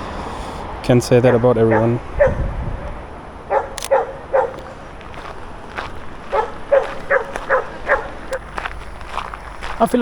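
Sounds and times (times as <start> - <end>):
dog barking: 1.2 - 2.4, 3.5 - 4.6, 6.3 - 8.2.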